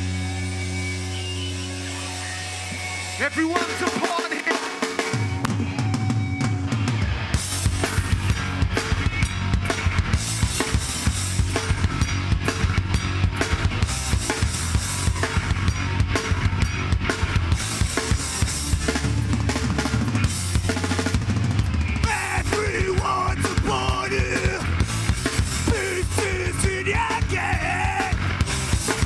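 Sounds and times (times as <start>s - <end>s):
heavy band playing: 0.0s - 29.0s
fast drum kit hits: 7.4s - 29.0s.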